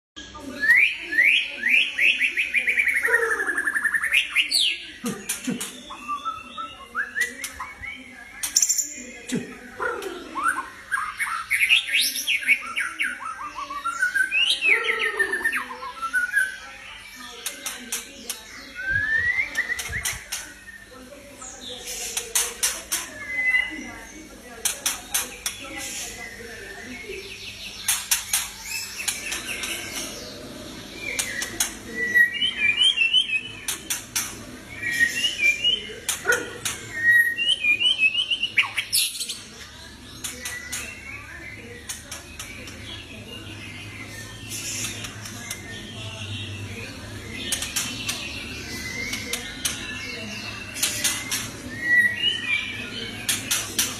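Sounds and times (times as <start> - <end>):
bird singing whistled notes: 18.6 - 21.0.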